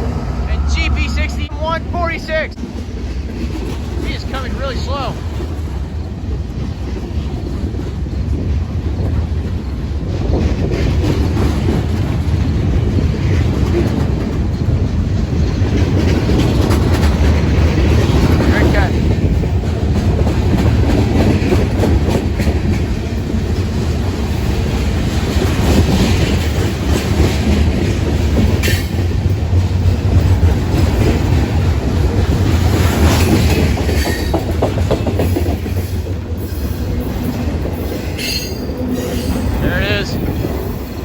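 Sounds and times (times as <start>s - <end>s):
freight train wheels clacking: 0.0s - 41.0s.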